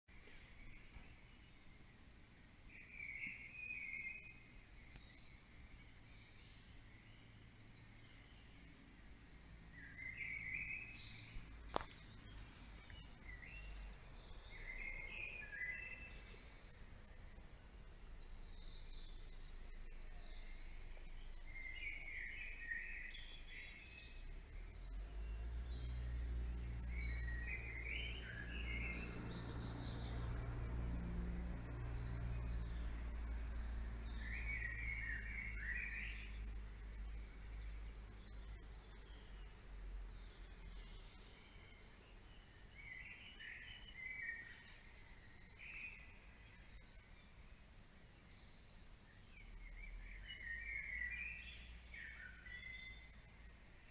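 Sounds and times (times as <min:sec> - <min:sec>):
faint low background rumble: 0:00.1 - 0:53.9
songbirds singing whistled notes: 0:00.1 - 0:53.9.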